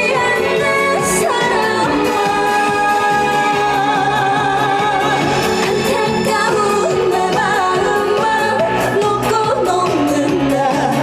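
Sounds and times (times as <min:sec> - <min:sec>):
loud backing track: 0:00.0 - 0:11.0
woman singing with vibrato: 0:00.0 - 0:11.0.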